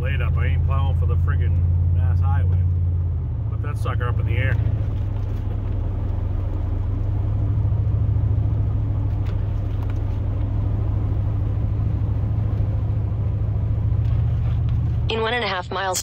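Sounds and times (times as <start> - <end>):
pickup truck engine and tyres droning: 0.0 - 16.0.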